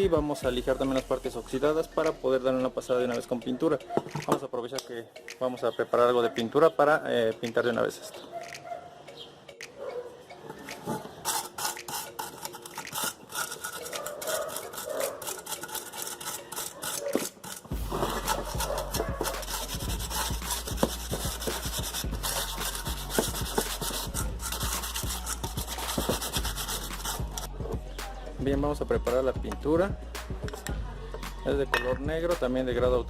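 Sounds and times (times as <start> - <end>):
sandpaper rasping on metal: 10.9 - 27.5.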